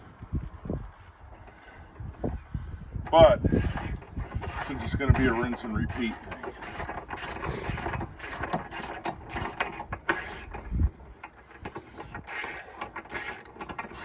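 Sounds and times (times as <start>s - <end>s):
metallic tool clicks and clanks: 3.6s - 10.6s.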